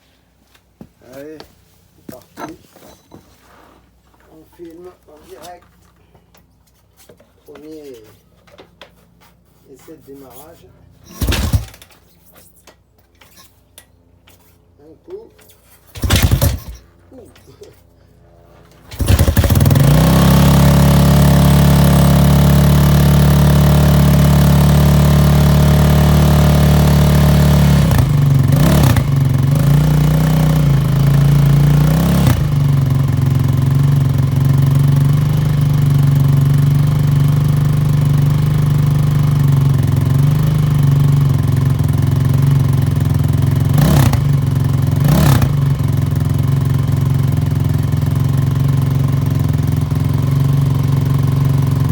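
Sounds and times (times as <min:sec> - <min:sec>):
quad engine starting and idling: 0:11.0 - 0:12.2, 0:15.8 - 0:51.9
throttle revs: 0:11.1 - 0:11.8, 0:16.0 - 0:16.8, 0:18.9 - 0:41.0, 0:43.0 - 0:46.7.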